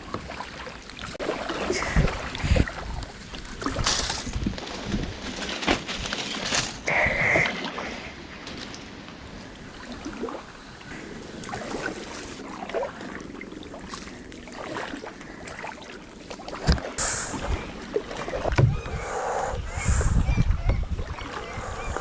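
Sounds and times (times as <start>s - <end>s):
paddle splashing in water: 0.0s - 18.7s
wind buffeting microphone: 1.1s - 12.5s, 16.6s - 22.0s.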